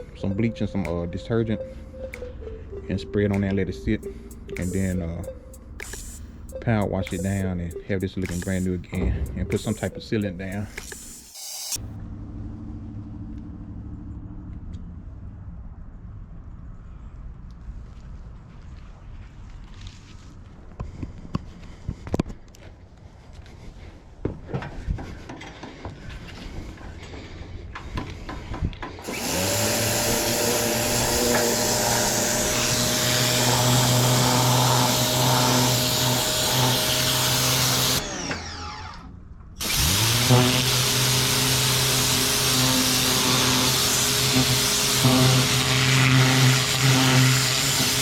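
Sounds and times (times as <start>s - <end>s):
pressure washer motor running: 29.1s - 39.0s, 39.6s - 48.0s.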